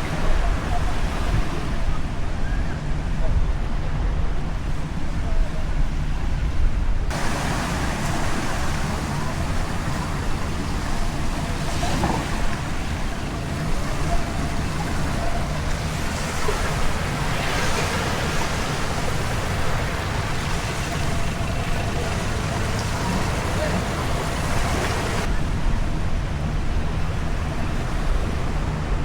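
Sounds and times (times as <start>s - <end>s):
passing road traffic: 7.1s - 29.0s.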